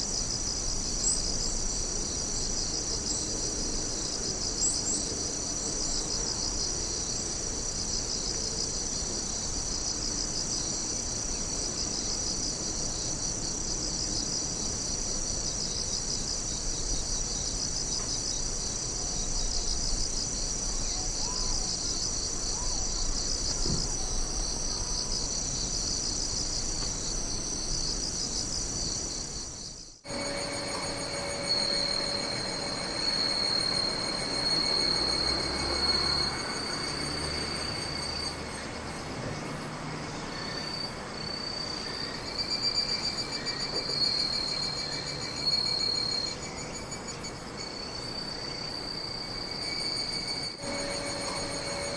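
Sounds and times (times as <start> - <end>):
insects chirring: 0.0 - 51.9
different steady sound: 30.1 - 37.2, 50.6 - 51.9.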